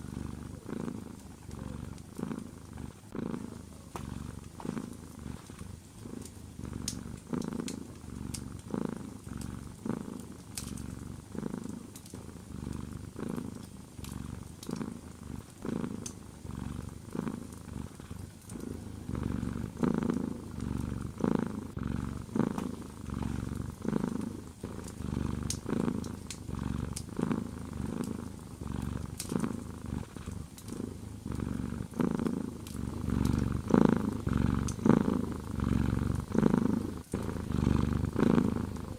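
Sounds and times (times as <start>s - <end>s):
cat purring: 0.0s - 38.9s
faint sharp clicks: 3.9s - 8.7s, 10.1s - 11.0s, 11.6s - 16.2s, 17.4s - 18.8s, 22.4s - 22.8s, 23.7s - 28.4s, 29.1s - 30.8s.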